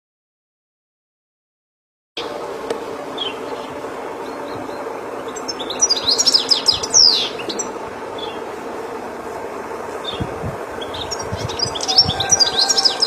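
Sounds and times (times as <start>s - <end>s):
steady background noise: 2.2s - 13.0s
goldfinch chirping and twittering: 3.2s - 8.4s, 10.8s - 13.0s.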